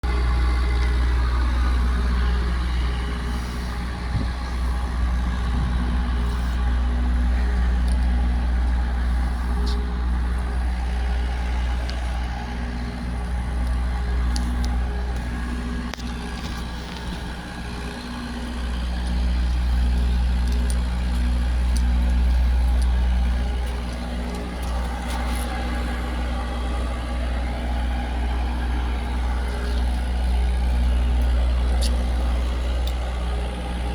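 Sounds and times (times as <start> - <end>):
diesel truck engine idling: 0.0 - 33.9.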